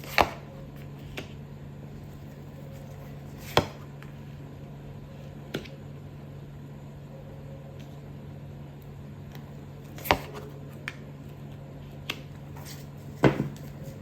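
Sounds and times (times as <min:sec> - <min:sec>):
steady low hum: 0:00.0 - 0:14.0
cards being handled: 0:09.9 - 0:14.0.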